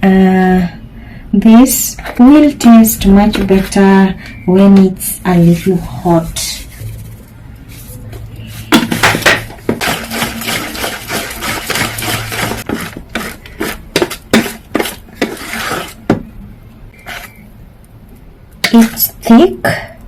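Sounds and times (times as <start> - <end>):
utensil stirring batter in bowl: 8.7 - 16.3, 16.9 - 17.4.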